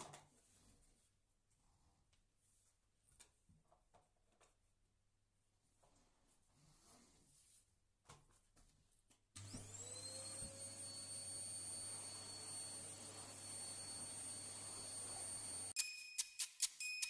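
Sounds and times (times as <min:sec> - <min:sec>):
appliance motor whirring: 0:09.4 - 0:16.8.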